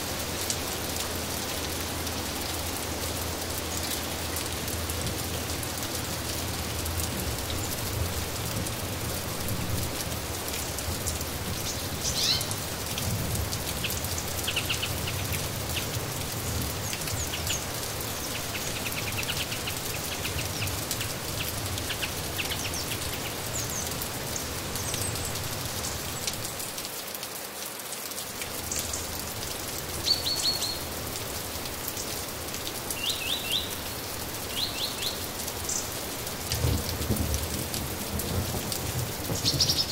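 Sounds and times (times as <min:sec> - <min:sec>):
steady rain falling: 0:00.0 - 0:39.9
birds chirping: 0:11.6 - 0:12.6.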